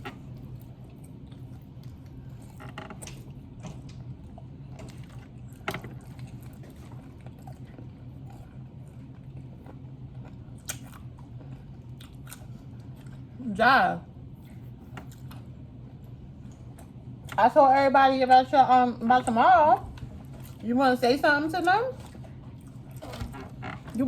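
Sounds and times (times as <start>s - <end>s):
chewing: 0.0s - 13.4s, 14.4s - 17.4s, 20.0s - 20.6s, 21.9s - 24.0s
steady low hum: 0.0s - 24.0s.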